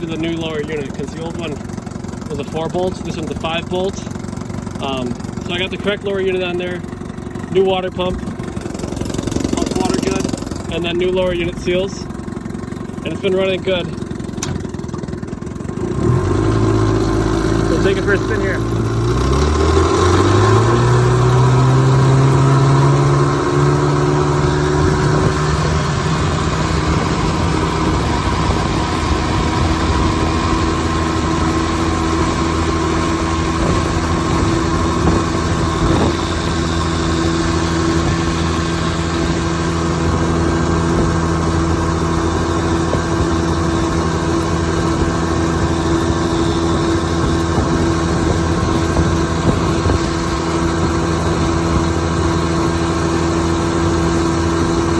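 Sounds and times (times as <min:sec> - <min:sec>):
outboard motor running: 0:00.0 - 0:54.9.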